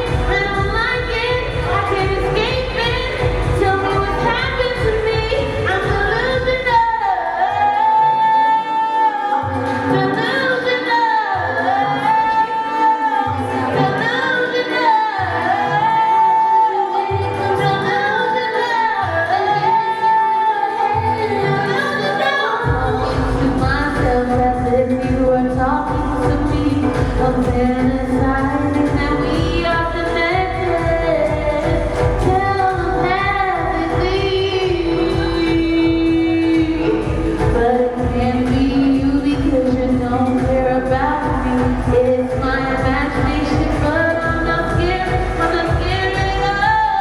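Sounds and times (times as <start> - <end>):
bass-heavy beat: 0.0 - 7.0, 22.7 - 47.0
synth backing: 0.0 - 47.0.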